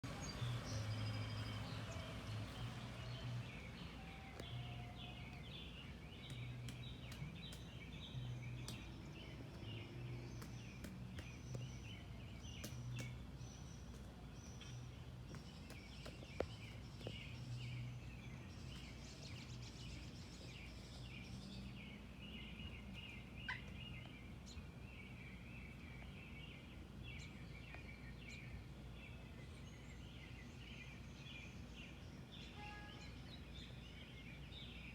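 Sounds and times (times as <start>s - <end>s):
birds chattering: 0.1s - 24.3s.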